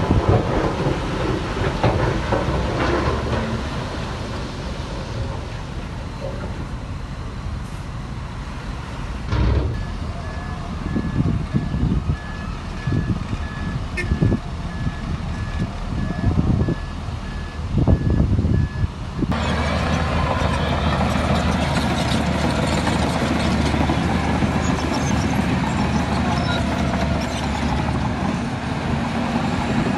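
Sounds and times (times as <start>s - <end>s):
heavy diesel engine running: 0.0s - 29.9s
reversing alarm beeping: 9.8s - 19.3s.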